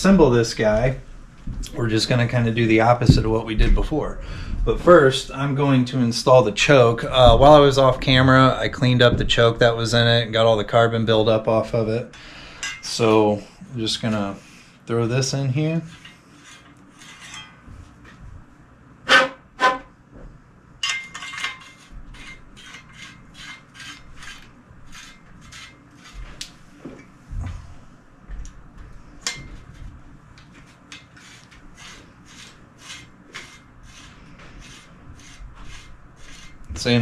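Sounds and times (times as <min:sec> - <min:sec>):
metal threads scraping: 0:15.8 - 0:17.7, 0:20.8 - 0:26.4, 0:30.5 - 0:37.0.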